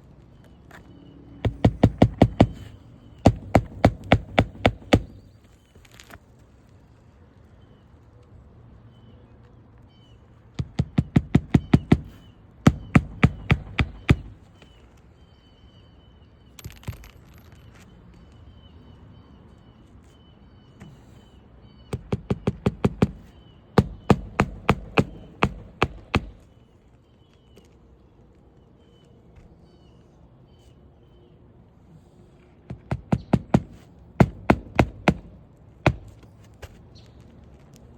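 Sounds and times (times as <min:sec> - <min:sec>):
hammer nailing shingle: 0:01.4 - 0:05.5, 0:10.6 - 0:14.7, 0:16.6 - 0:17.4, 0:21.9 - 0:26.5, 0:32.7 - 0:36.8.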